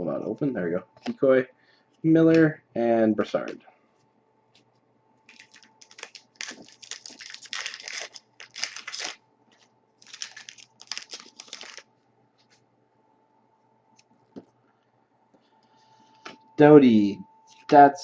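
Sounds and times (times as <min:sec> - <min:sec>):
wrapper crinkling and tearing: 0:05.3 - 0:11.9
cards rustling: 0:05.3 - 0:12.6.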